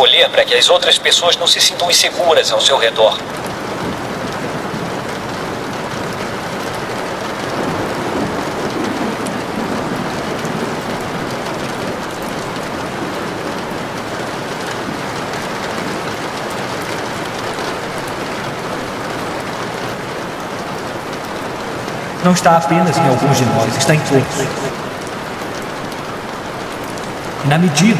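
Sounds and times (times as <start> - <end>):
heavy rain pattering: 3.2 - 24.8.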